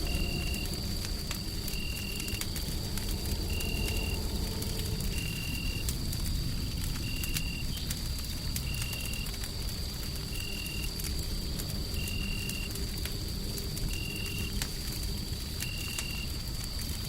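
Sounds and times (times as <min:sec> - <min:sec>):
low rumbling noise: 0:00.0 - 0:10.2
wood fire crackling: 0:00.0 - 0:17.0.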